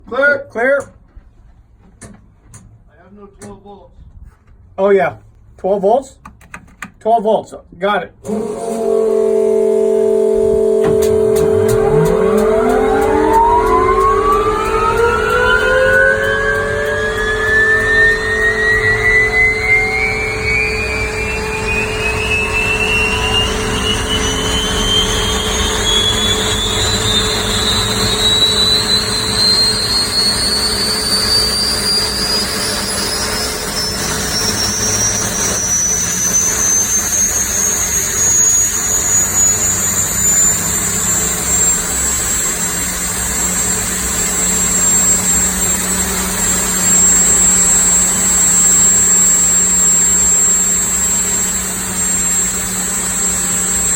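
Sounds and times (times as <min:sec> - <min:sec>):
turbine engine whine: 0:08.2 - 0:53.9
low engine rumble: 0:10.2 - 0:28.3.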